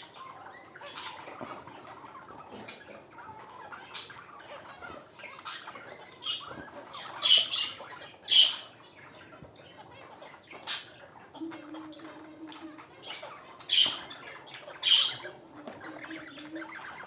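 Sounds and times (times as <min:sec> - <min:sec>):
small birds chirping and chattering: 0:00.0 - 0:17.0
loud sharp bird calls: 0:03.4 - 0:09.3, 0:10.4 - 0:17.0.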